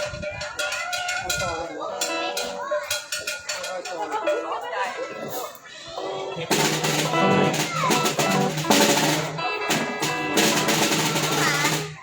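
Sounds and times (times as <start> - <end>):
drum kit with snare drum: 0.0 - 3.9, 6.4 - 12.0
held pitched instrument notes: 6.0 - 12.0.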